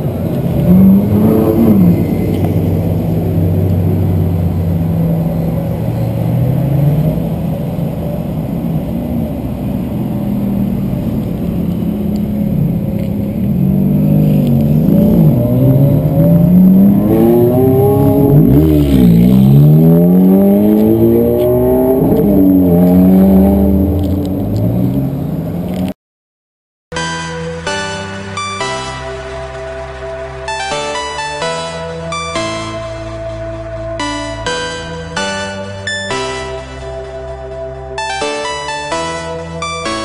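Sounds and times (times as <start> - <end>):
sports car engines revving: 0.0 - 25.9
music: 26.9 - 40.0.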